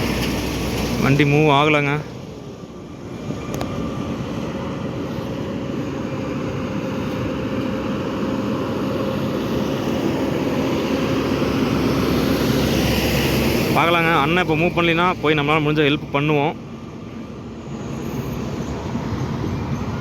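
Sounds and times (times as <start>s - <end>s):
vehicle engine and road noise: 0.0s - 20.0s.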